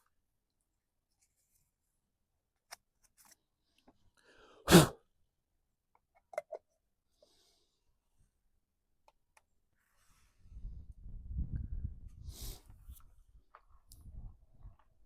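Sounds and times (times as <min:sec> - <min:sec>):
intake of breath: 0:04.2 - 0:04.7, 0:12.2 - 0:12.9
person sneezing: 0:04.6 - 0:05.0.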